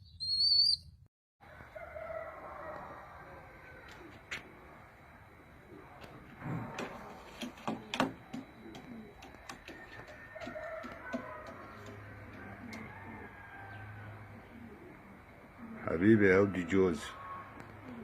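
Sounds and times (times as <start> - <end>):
pigeons cooing: 3.2 - 18.0
sharp taps: 7.4 - 12.9.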